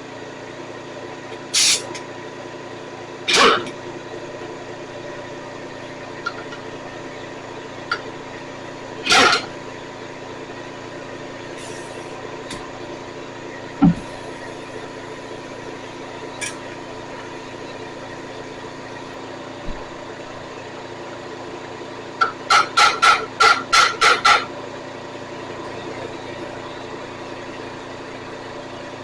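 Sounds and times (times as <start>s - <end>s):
mechanical hum: 0.0s - 29.0s
compressed-air tool bursts: 1.5s - 1.9s.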